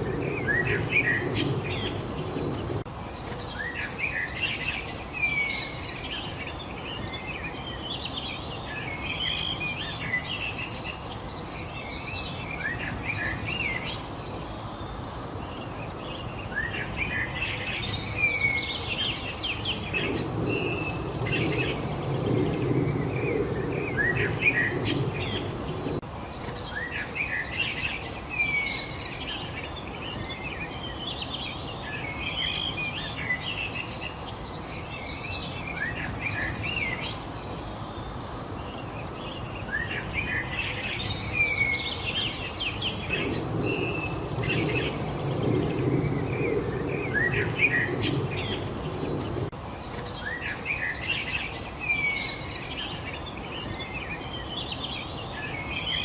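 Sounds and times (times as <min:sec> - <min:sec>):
low rushing noise: 0:00.0 - 0:03.2, 0:16.8 - 0:26.2, 0:39.9 - 0:51.4
songbirds chirping and singing: 0:00.0 - 0:56.0.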